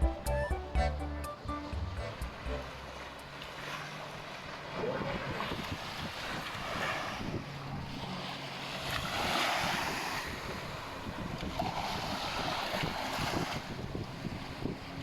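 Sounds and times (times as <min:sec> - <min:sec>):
water washing in swells: 0:02.0 - 0:15.0
wind noise on microphone: 0:04.8 - 0:08.2, 0:08.9 - 0:15.0.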